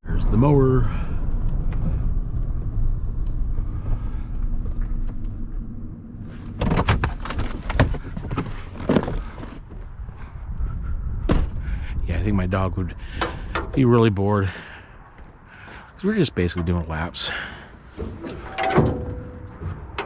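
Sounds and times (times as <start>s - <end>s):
sharp knocks and clatters: 6.6s - 9.3s
truck engine rumbling: 6.8s - 9.8s.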